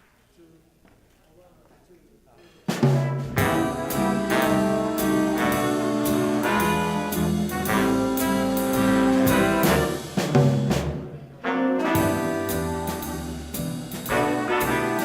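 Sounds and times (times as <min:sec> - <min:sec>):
swing band playing jazz: 0:02.6 - 0:15.0.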